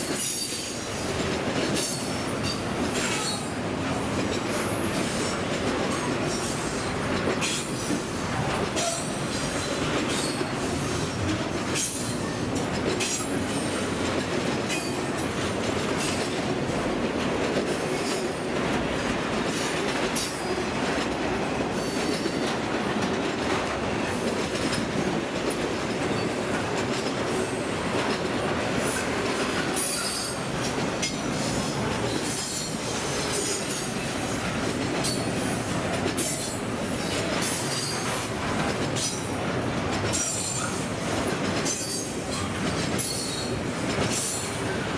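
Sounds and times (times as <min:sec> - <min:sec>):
freight train wheels rumbling: 0:00.0 - 0:44.9
wheels clanking over rail joints: 0:00.0 - 0:44.9
high wheel squeal: 0:29.7 - 0:30.5.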